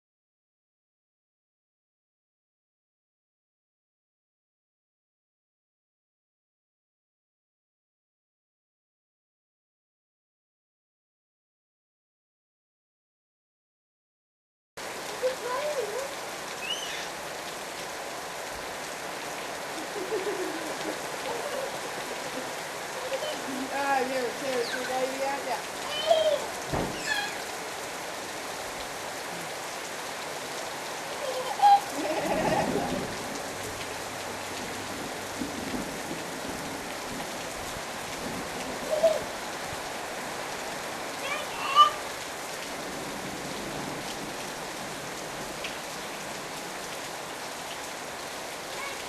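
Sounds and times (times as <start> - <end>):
heavy rain falling: 14.8 - 49.0
voices calling out: 15.1 - 17.3, 19.4 - 27.8, 48.7 - 49.0.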